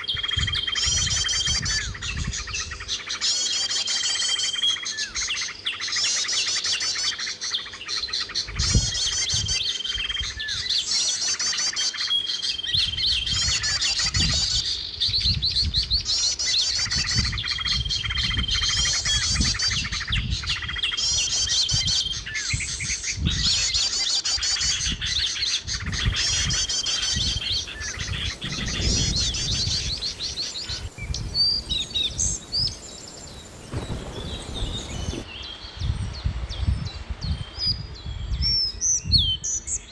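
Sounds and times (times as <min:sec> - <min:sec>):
bird chirps: 0:00.0 - 0:39.9
songbird trilling song: 0:00.0 - 0:39.9
low rumble: 0:28.0 - 0:35.2.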